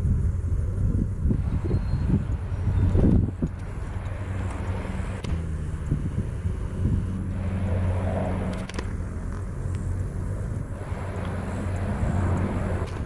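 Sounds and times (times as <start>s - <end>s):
helicopter engines and rotor rumble: 0.0s - 13.0s
faint sharp clicks: 11.2s - 13.0s.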